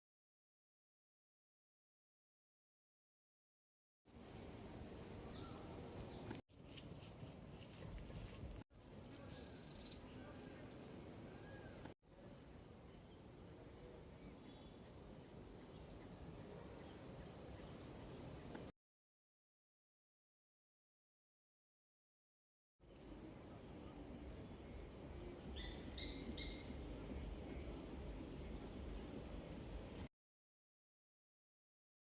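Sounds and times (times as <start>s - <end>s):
bird chirps: 4.7s - 7.0s.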